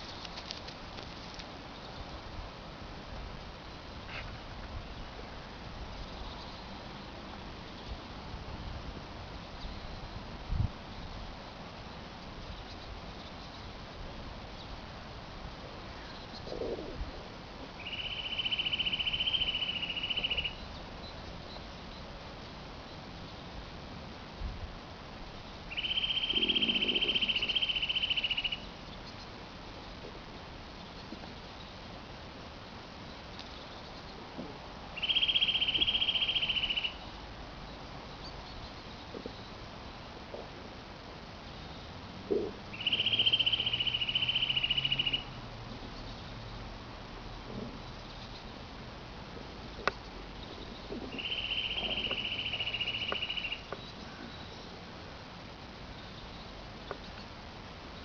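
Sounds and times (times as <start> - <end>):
songbird trill: 5.9 - 8.1, 11.9 - 13.9, 15.9 - 17.0, 17.7 - 23.5, 25.3 - 32.0, 33.0 - 34.3, 34.9 - 39.7, 41.4 - 46.7, 47.6 - 48.7, 49.7 - 54.9, 55.8 - 58.0
bird singing rapid trill: 17.8 - 21.7, 25.7 - 29.2, 35.0 - 37.1, 42.7 - 46.4, 50.4 - 54.7.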